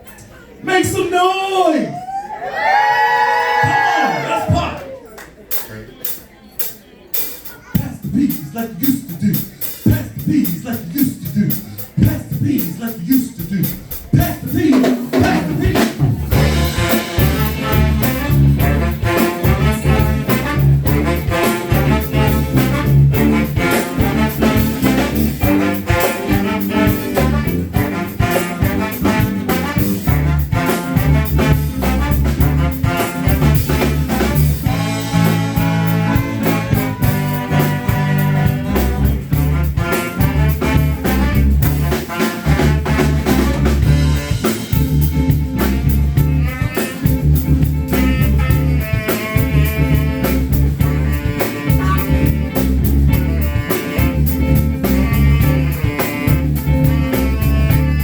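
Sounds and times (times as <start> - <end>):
steady drum beat: 3.5 - 58.0
heavy bass: 7.6 - 58.0
brass horn section: 15.2 - 58.0.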